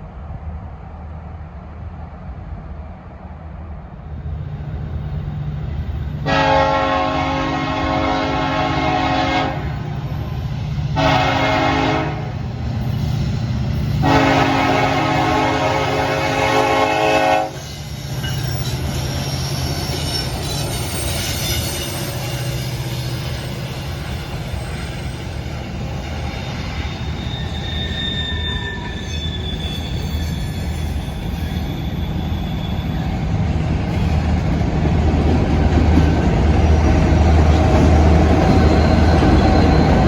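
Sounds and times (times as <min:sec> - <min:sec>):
train rumble and rail noise: 0:00.0 - 0:40.0
train air horn blasts: 0:06.2 - 0:09.8, 0:11.0 - 0:12.4, 0:14.0 - 0:17.7.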